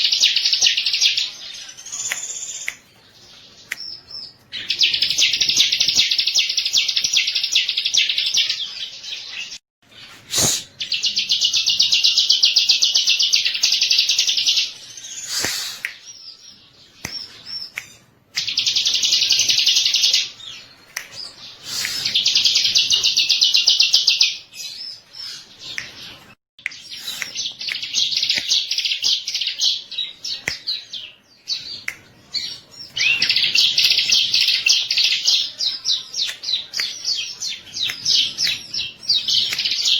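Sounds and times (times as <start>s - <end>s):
bird buzzy trilling song: 10.0s - 39.9s.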